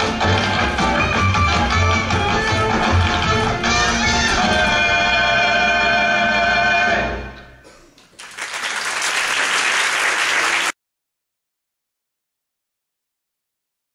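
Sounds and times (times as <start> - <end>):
audience applause: 8.1 - 10.8.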